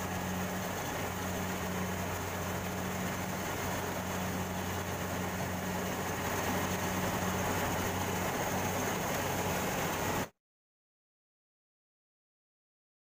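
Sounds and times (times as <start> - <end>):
combine harvester engine hum: 0.0 - 10.3
threshing machinery noise: 0.0 - 10.3.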